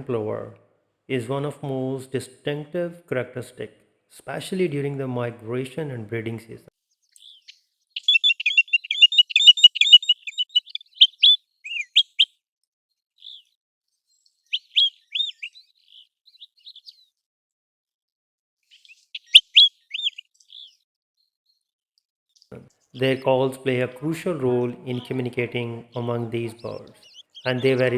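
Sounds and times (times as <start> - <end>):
bird chirping notes: 7.0 - 12.3, 13.2 - 13.5, 14.1 - 17.1, 18.7 - 20.8, 22.4 - 27.9
bird whistles rising and falling: 7.2 - 12.3, 14.5 - 15.6, 18.7 - 20.8.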